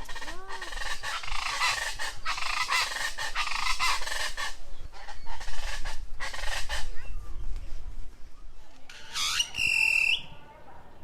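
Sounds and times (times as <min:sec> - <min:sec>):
chorus of birds chattering: 0:00.0 - 0:07.4.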